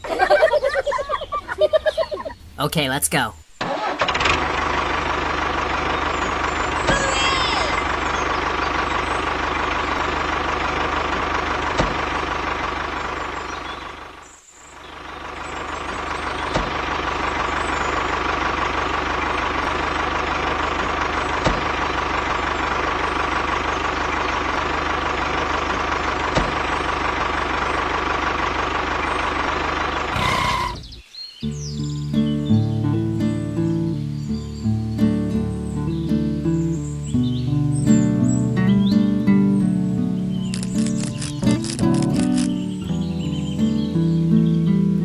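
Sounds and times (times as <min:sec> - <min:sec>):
engine-like drone with whine: 0:04.1 - 0:31.0.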